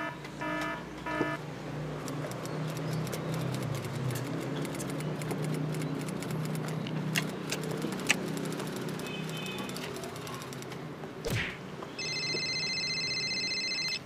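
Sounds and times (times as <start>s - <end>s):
beeping tone: 0.0s - 1.4s, 12.0s - 14.0s
sharp clicks: 2.0s - 11.5s
wet chewing clicks: 2.1s - 10.8s.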